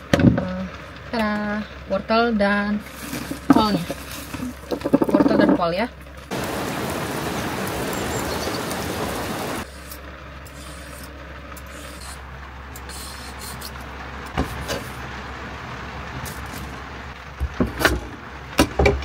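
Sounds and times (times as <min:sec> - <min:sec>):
heavy rain hissing: 0:06.2 - 0:18.5
carrot being shaved: 0:09.6 - 0:12.2, 0:12.8 - 0:15.0.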